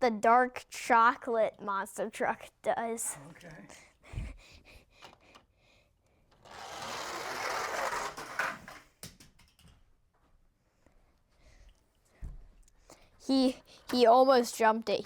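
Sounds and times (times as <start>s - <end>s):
toy truck wheels rattling: 6.4s - 9.7s
toy truck landing clacks: 6.4s - 9.8s.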